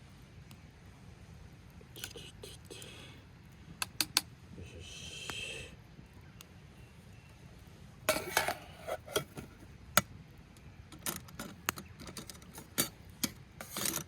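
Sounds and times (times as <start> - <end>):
utensils clinking against cookware: 8.1 - 9.5, 12.1 - 14.0.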